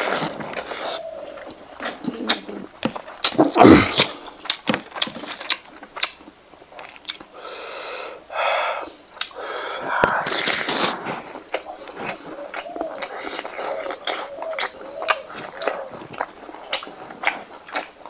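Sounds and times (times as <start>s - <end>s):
wet chewing and lip smacks: 0.0s - 7.4s, 8.8s - 9.4s, 10.0s - 18.0s
breathy huffs: 7.4s - 10.6s.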